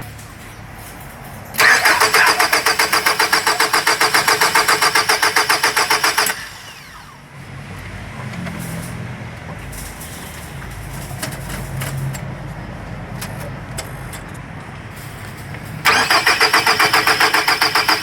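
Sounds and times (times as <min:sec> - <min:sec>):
car starter cranking: 0:01.6 - 0:07.2, 0:15.8 - 0:18.0.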